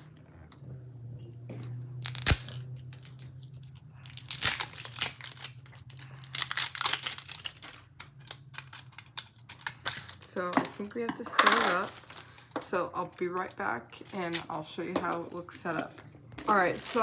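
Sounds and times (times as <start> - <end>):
steady low hum: 0.0 - 4.7
plastic packaging crinkling: 2.0 - 11.0, 11.8 - 17.0.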